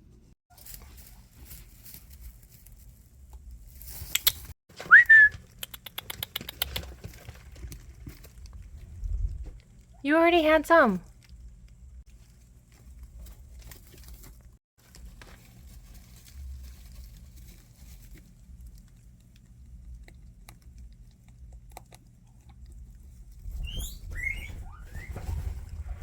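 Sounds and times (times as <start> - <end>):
guinea pigs shuffling: 0.2 - 26.0
faint clicks and rustles: 0.5 - 10.0, 11.0 - 26.0
high rising squeaks: 23.4 - 26.0.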